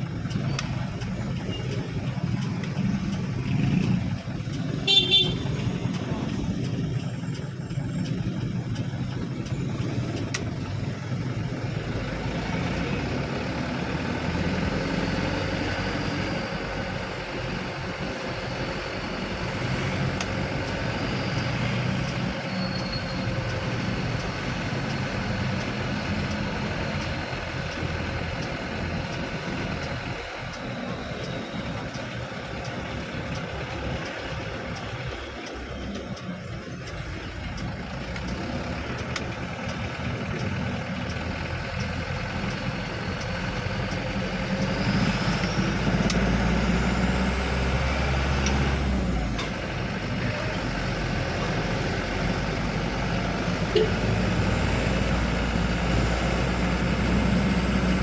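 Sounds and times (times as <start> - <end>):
truck engine humming: 0.0 - 58.0.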